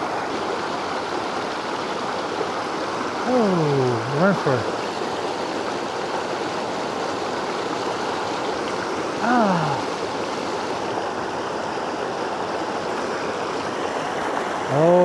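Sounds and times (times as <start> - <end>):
creek water rushing: 0.0 - 15.0
wordless exclamation: 3.2 - 4.7, 9.2 - 9.9.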